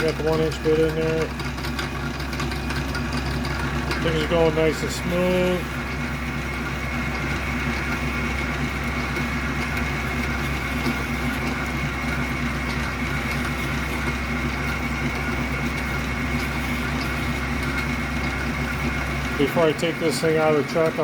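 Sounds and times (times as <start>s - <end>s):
metal lathe drilling: 0.0s - 21.0s.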